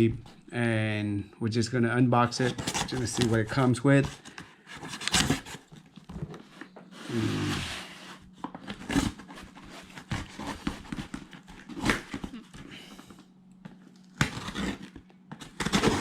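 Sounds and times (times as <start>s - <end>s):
packaging rustling or tearing: 2.3s - 6.0s, 8.6s - 12.7s, 14.0s - 16.0s.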